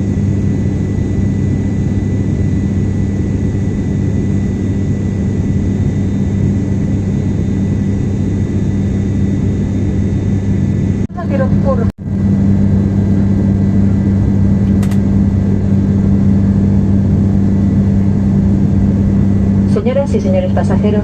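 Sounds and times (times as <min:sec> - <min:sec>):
airliner engine drone: 0:00.0 - 0:21.0.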